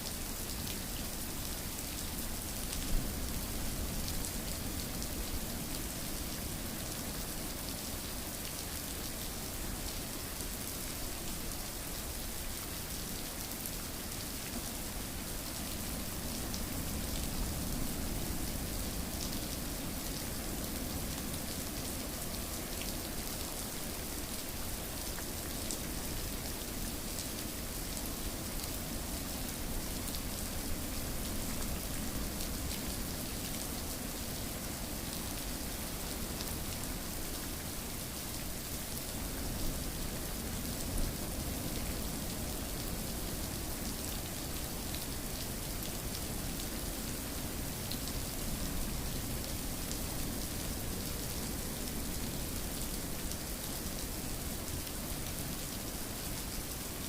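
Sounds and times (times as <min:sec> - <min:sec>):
rain pattering on a surface: 0:00.0 - 0:57.0.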